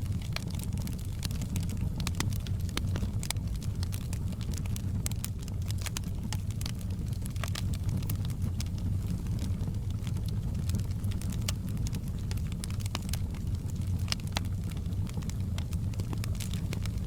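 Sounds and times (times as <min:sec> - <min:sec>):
campfire crackling and popping: 0:00.0 - 0:17.0
low fire rumble: 0:00.0 - 0:17.0.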